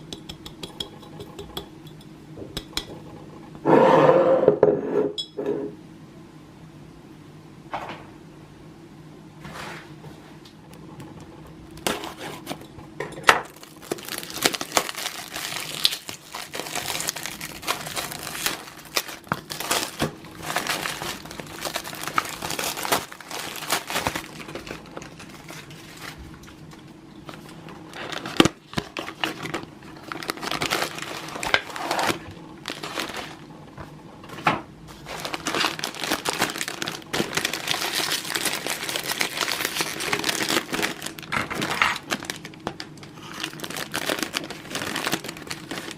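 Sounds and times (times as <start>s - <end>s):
crinkly packaging unwrapped: 11.0s - 12.6s, 13.4s - 33.5s, 34.9s - 45.9s
packaging tearing: 11.7s - 12.6s, 13.4s - 26.2s, 27.9s - 33.4s, 35.0s - 45.9s.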